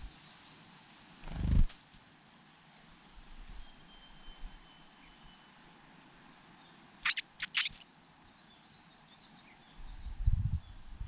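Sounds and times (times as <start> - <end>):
faint high twittering: 3.5 - 11.0
sharp bird chirps: 7.0 - 7.9.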